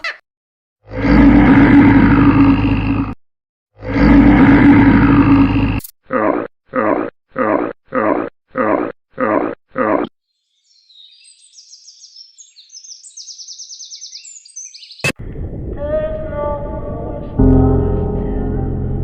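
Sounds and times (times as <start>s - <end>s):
lion roaring: 0.9s - 3.0s, 3.8s - 5.8s
lion grunting: 0.9s - 3.1s, 3.8s - 10.1s.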